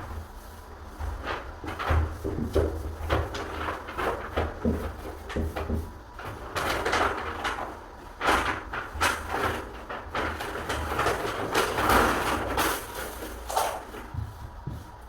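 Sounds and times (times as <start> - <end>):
knocks on wooden door: 14.1 - 14.9.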